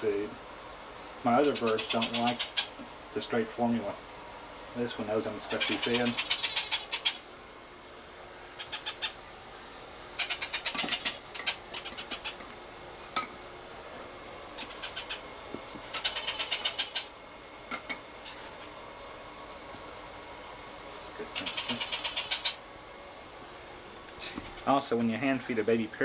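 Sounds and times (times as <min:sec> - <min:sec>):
parrot chick begging chatter: 0:01.5 - 0:02.8, 0:05.5 - 0:07.2, 0:08.6 - 0:09.2, 0:10.2 - 0:12.4, 0:14.6 - 0:15.2, 0:15.9 - 0:17.1, 0:21.3 - 0:22.6.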